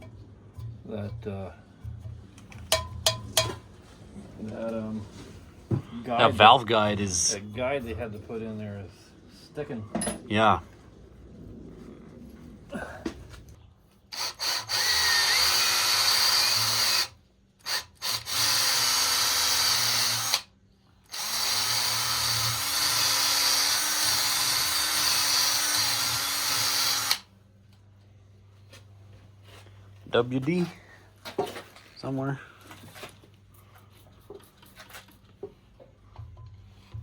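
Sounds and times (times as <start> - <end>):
drill motor whine: 14.1 - 17.1, 17.7 - 20.4, 21.1 - 27.2.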